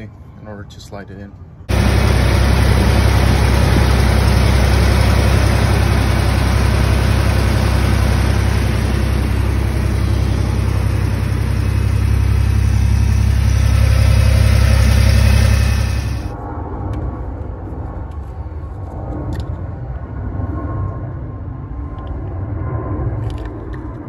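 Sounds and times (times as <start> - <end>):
pickup engine idling: 1.7 - 16.3.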